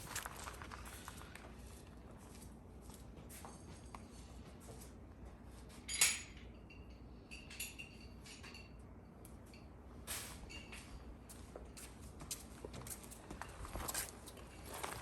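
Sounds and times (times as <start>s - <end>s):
light metallic clinks: 5.9s - 10.9s.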